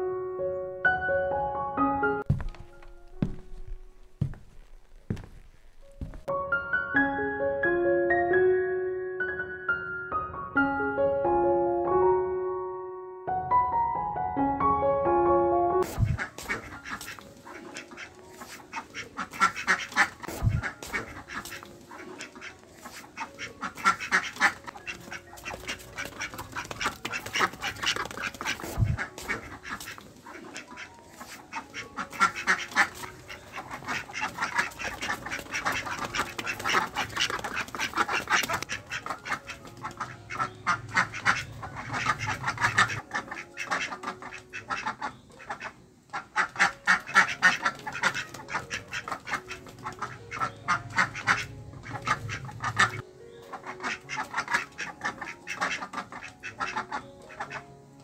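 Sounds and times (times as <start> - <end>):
ducks quacking: 15.8 - 57.8.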